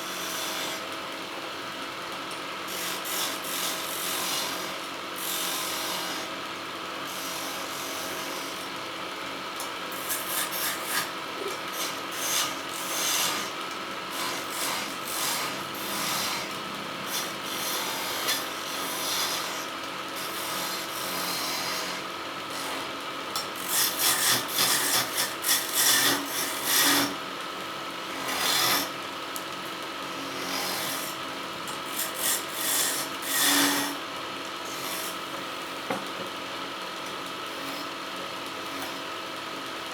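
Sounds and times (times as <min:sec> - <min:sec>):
tool scraping spinning wood: 0:09.9 - 0:27.2, 0:28.0 - 0:29.0, 0:29.6 - 0:36.4
wood lathe motor hum: 0:10.0 - 0:39.9.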